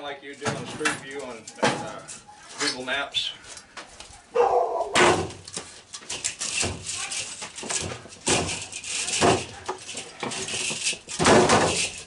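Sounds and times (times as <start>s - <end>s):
metal parts clicking and scraping: 5.4s - 12.0s.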